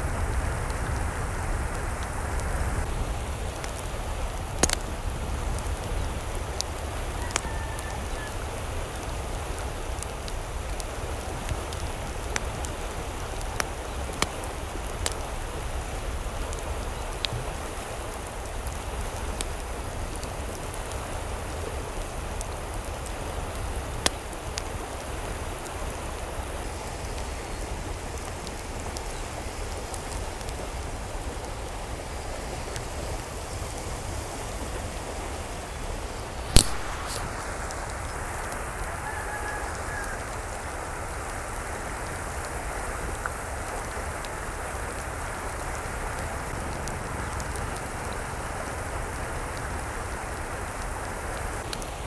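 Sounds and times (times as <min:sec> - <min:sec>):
steady rain falling: 0:00.0 - 0:52.0
loud sharp click: 0:36.5 - 0:37.3.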